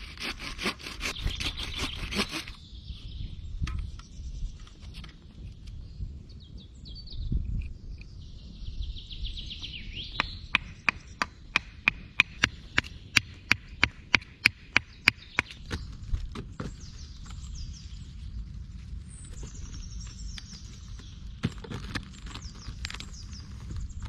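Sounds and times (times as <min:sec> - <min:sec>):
forest birds chirping: 0:00.0 - 0:24.0
bird trill: 0:08.8 - 0:15.9.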